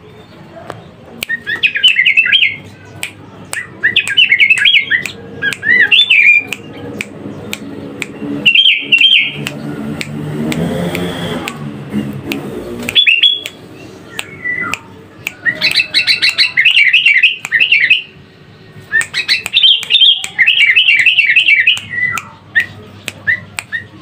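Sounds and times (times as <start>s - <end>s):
sharp clicks: 0.7s - 18.0s, 18.8s - 23.9s
bird warbling song: 3.6s - 9.7s, 12.6s - 18.2s.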